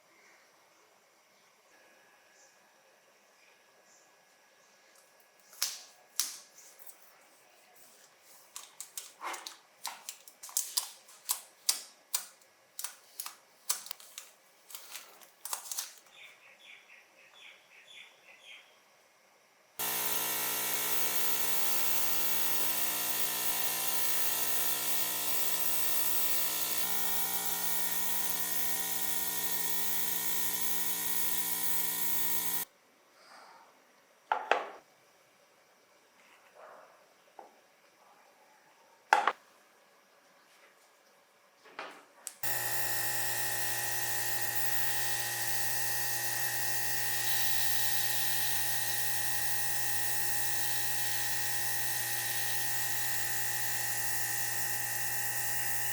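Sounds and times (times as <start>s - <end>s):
small parts clicking: 8.6s - 16.1s
small electric motor running: 19.8s - 32.7s, 42.4s - 55.9s.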